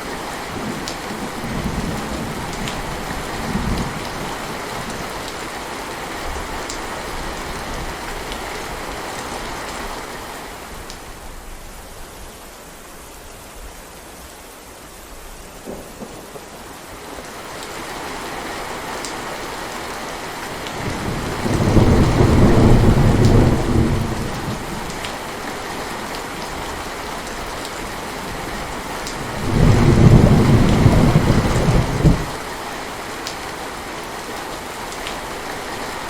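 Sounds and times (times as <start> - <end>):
heavy rain falling: 0.0 - 36.0
deep rolls of thunder: 20.8 - 24.9, 29.2 - 32.4.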